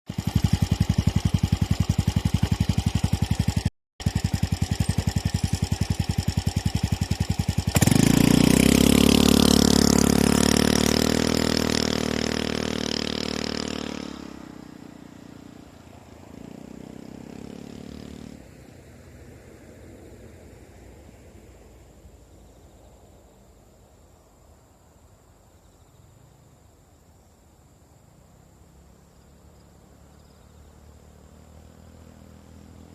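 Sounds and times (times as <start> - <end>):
scooter engine idling and revving: 0.1 - 22.9, 28.5 - 32.9.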